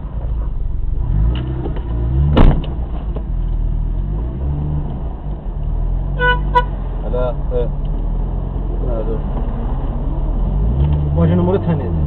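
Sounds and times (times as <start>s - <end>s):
car engine running while driving: 0.0s - 12.0s
sharp thump: 1.3s - 3.3s.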